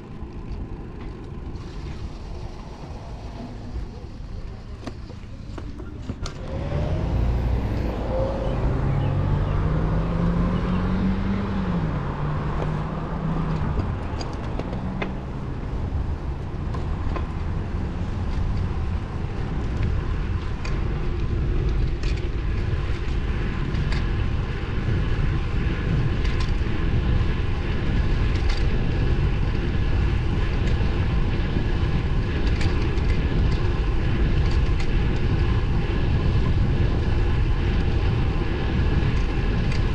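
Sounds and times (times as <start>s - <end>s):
wind rumbling on microphone: 0.0s - 39.9s
motor vehicle passing: 1.4s - 19.6s.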